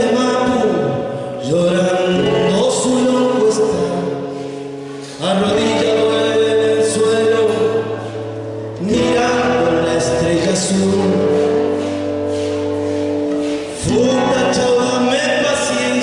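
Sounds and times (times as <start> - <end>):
folk song singing: 0.0 - 16.0.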